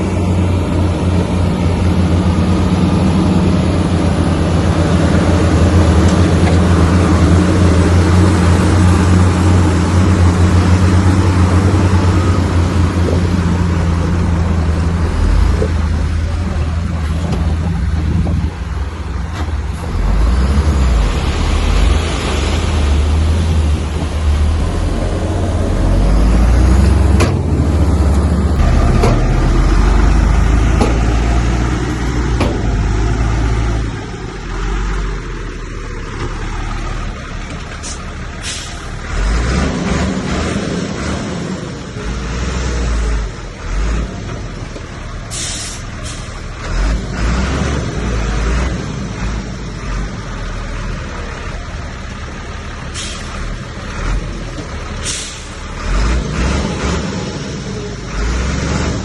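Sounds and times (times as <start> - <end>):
diesel machinery rumbling: 0.0 - 59.0
short hisses: 45.3 - 46.3, 53.0 - 53.3, 55.0 - 55.6.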